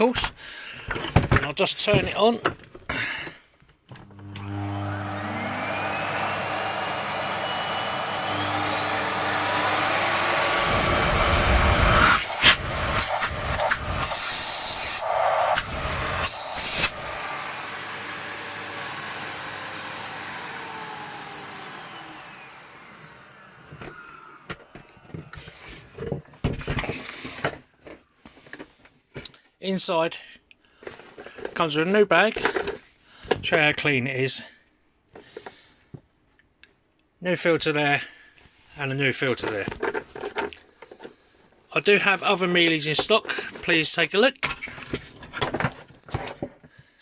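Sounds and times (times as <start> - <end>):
vacuum cleaner motor whine: 4.0 - 26.0.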